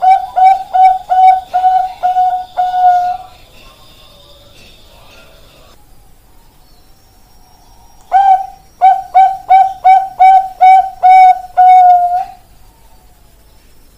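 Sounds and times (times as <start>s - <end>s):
dove cooing: 0.0s - 3.3s, 8.1s - 12.5s.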